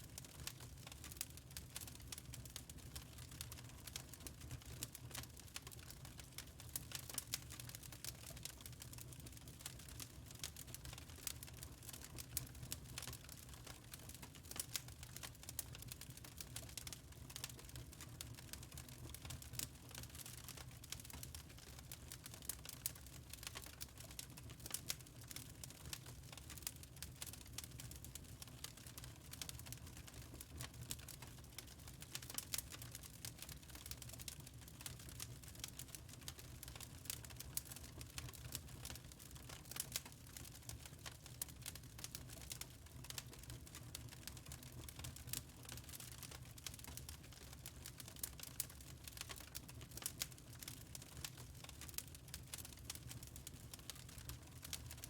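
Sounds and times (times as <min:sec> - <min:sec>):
wood fire crackling: 0:00.1 - 0:55.0.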